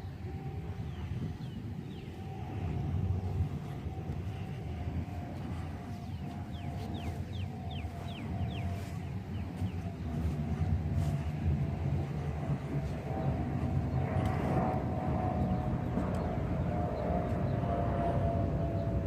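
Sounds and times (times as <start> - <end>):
faint steady hum: 0.0 - 19.0
low outdoor rumble: 0.0 - 19.0
bird chirps: 6.0 - 10.3.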